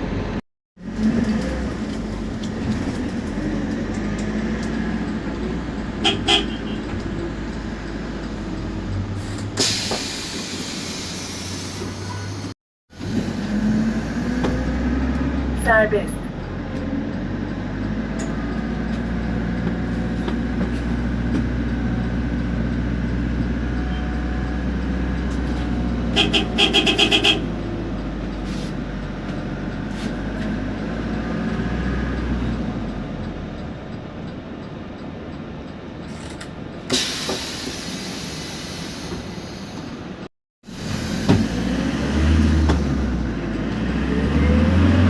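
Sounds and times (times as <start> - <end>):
bus engine under load: 0.0 - 45.0
air hiss: 9.6 - 12.1, 36.9 - 39.8.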